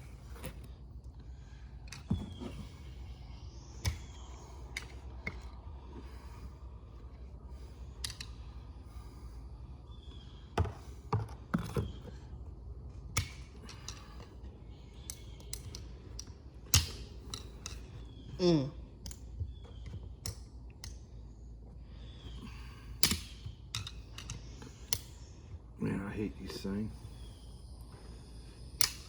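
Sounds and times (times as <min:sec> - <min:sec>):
steady low hum: 0:00.0 - 0:29.0
hand tools clicking and knocking: 0:23.0 - 0:25.1.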